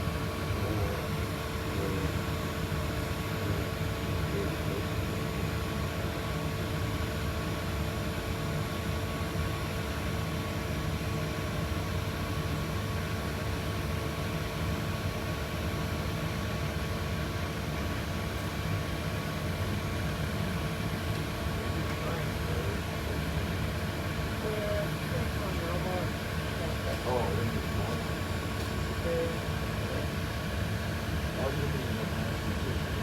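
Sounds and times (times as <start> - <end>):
jet engines passing overhead: 17.6 - 33.0.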